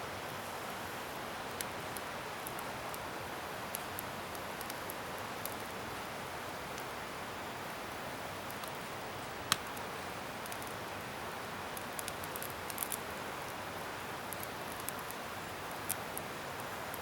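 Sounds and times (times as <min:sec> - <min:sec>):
bonfire hissing: 0:00.9 - 0:17.0
wood crackling and popping: 0:01.5 - 0:03.0, 0:03.6 - 0:05.8, 0:10.4 - 0:10.8, 0:11.7 - 0:13.6, 0:14.2 - 0:17.0.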